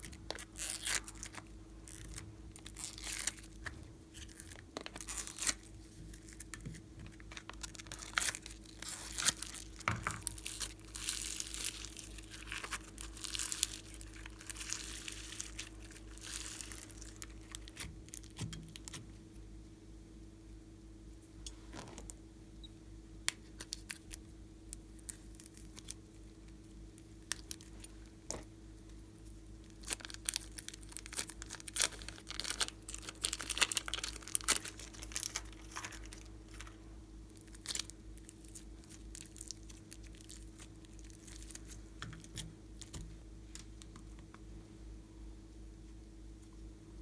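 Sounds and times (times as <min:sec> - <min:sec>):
faint hum: 0:00.0 - 0:47.0
slime clicking and crackling: 0:06.2 - 0:19.0, 0:29.7 - 0:36.7.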